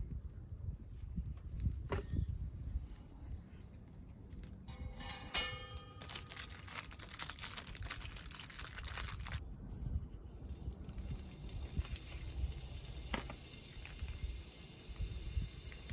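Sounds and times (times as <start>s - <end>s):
metallic clink: 4.7s - 6.3s
dense crackling or rustling: 5.8s - 9.4s.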